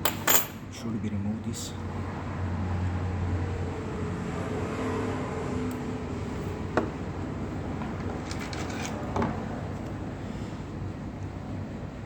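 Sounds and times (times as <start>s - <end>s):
low background hum: 0.0s - 3.4s.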